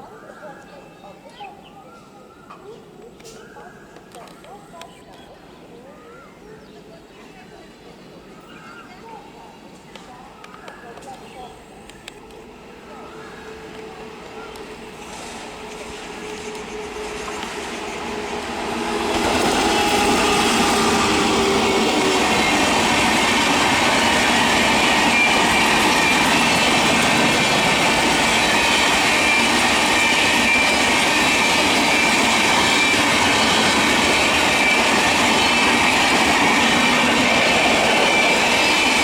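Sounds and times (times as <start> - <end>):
train wheels rushing on rails: 9.6 - 39.0.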